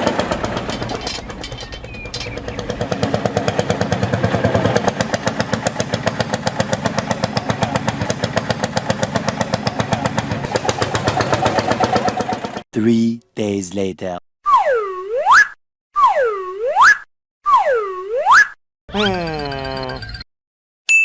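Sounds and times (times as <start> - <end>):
small tractor engine running: 0.0 - 12.6.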